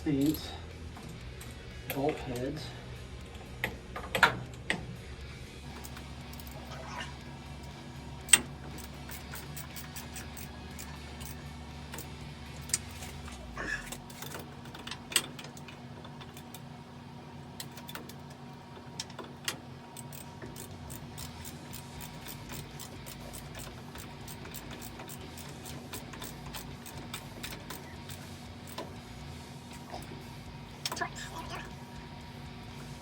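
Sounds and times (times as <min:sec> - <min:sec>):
low hum: 0:00.0 - 0:17.7
ratchet wrench clicking: 0:05.7 - 0:06.6, 0:07.6 - 0:13.1, 0:19.5 - 0:29.0.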